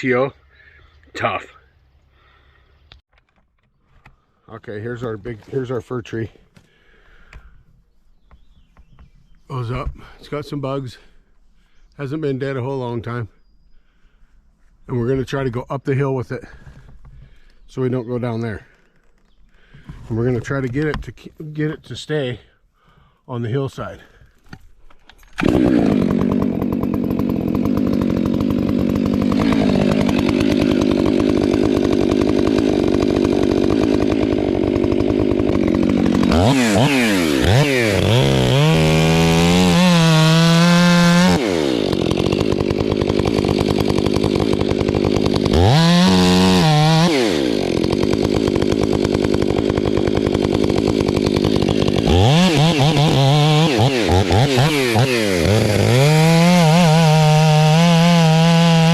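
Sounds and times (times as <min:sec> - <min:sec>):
chainsaw cutting and revving: 0:25.2 - 0:58.9.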